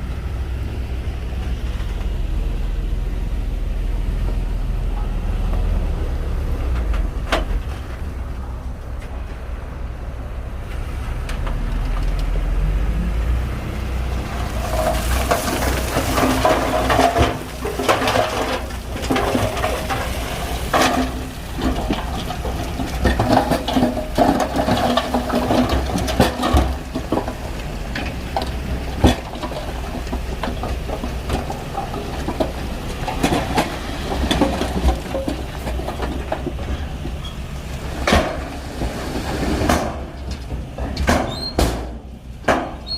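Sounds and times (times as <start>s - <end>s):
diesel engine rumble: 0.0s - 42.9s
clanking and scraping tracks: 4.1s - 42.9s.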